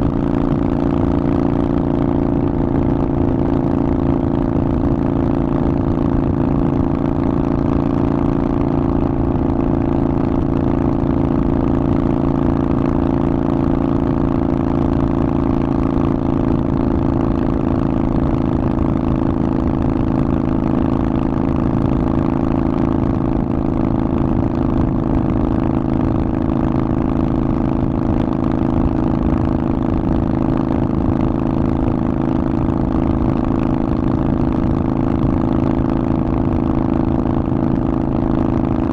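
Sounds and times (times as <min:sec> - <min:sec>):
motorcycle engine running steadily: 0:00.0 - 0:38.9.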